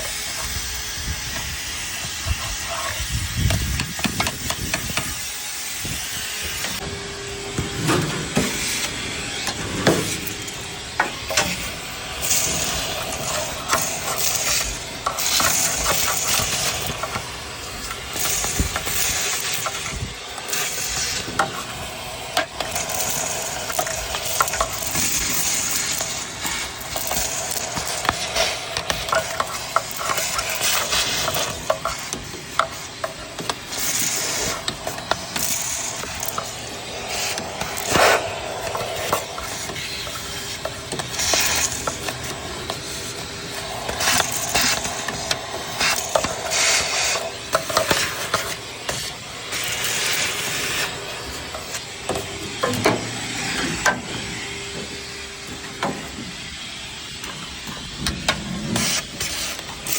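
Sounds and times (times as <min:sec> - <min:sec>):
hand tools clicking and clattering: 0:01.2 - 0:05.3, 0:07.5 - 0:56.2.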